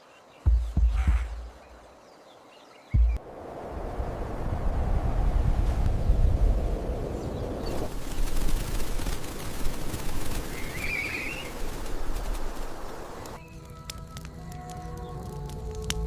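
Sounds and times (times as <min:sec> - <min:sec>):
music: 0:00.4 - 0:01.6, 0:03.0 - 0:03.2, 0:13.4 - 0:16.0
steady rushing rumble: 0:03.0 - 0:10.7.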